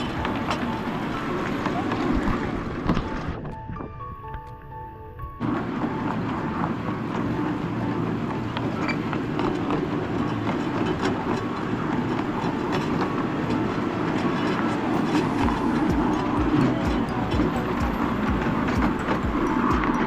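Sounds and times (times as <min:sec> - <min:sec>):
train wheels rumbling on rails: 0:00.0 - 0:03.7, 0:05.4 - 0:20.0
small clicks of wheels: 0:05.4 - 0:20.0.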